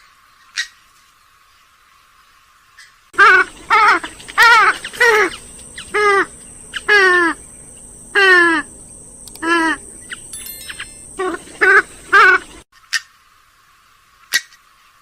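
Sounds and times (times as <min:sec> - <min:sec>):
swamphen harsh nasal calls: 0:03.2 - 0:08.8, 0:09.4 - 0:10.3, 0:11.1 - 0:12.6.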